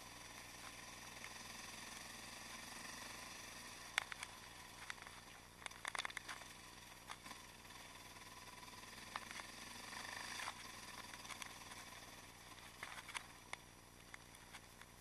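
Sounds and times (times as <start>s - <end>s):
muffled motorcycle engine: 0.0s - 15.0s
sharp clicks: 3.7s - 7.4s, 10.2s - 15.0s.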